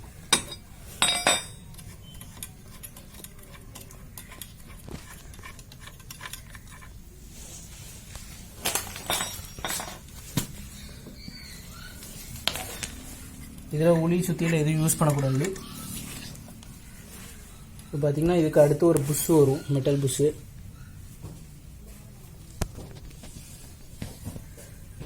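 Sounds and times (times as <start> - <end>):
metal tools clinking: 0.2 - 4.5, 8.6 - 10.3.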